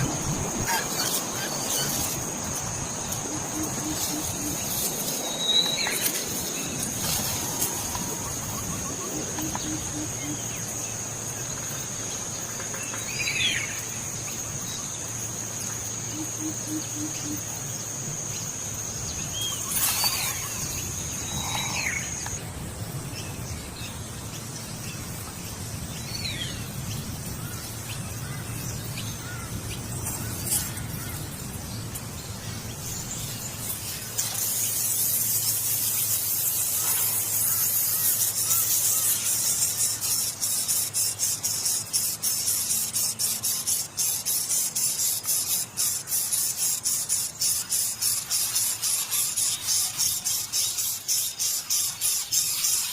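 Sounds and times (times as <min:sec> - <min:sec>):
high insect trill: 0:00.0 - 0:52.9
high rasping pulsing hiss: 0:00.0 - 0:52.9.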